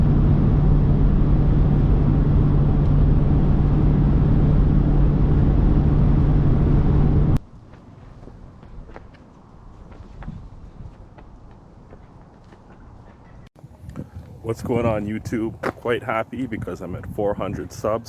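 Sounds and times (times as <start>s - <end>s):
vehicle drone with low hum: 0.0s - 7.7s.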